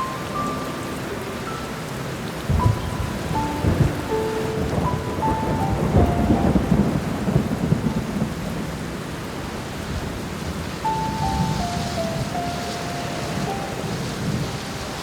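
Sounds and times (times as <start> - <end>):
slow piano melody: 0.0 - 15.0
steady rain: 0.0 - 15.0
rolling thunder: 2.4 - 15.0.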